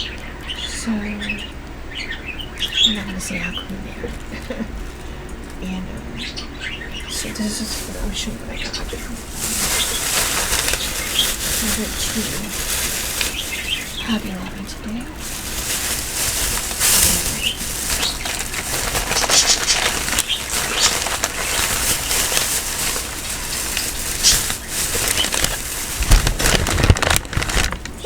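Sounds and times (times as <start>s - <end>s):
plastic bag rustling: 6.8s - 28.0s.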